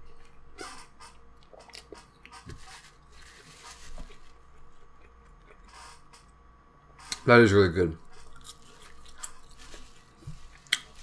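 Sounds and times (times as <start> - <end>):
person chewing crunchy food: 1.1 - 5.7, 8.0 - 11.0.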